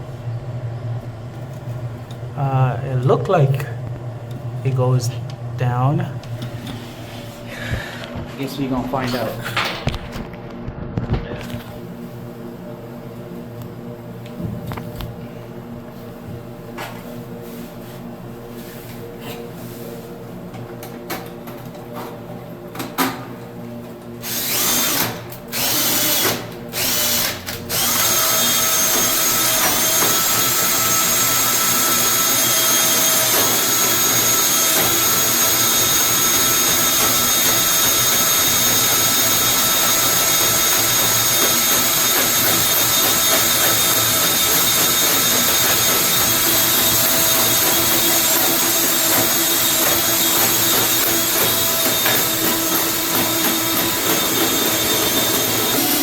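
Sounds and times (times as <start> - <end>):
drain snake motor running: 24.2 - 56.0.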